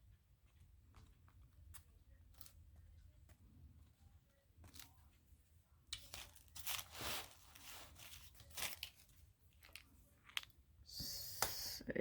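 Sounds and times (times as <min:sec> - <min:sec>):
paper rustling and scraping: 0:06.0 - 0:09.8.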